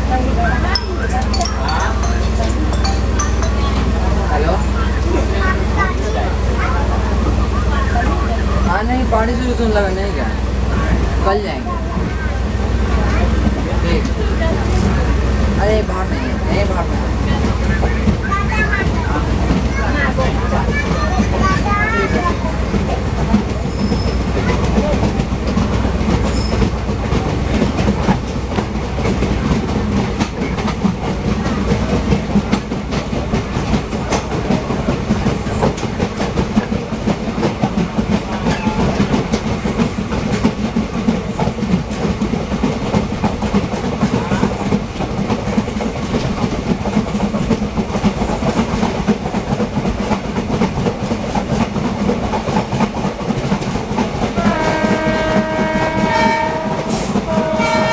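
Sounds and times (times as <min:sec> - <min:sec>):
train wheels clattering over joints: 0:11.8 - 0:57.9.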